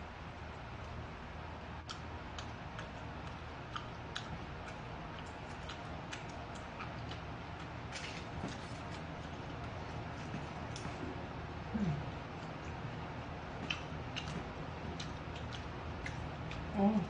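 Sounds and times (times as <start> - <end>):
steady low hum: 0.0 - 17.0
chewing and slurping: 1.8 - 11.2, 13.5 - 16.7.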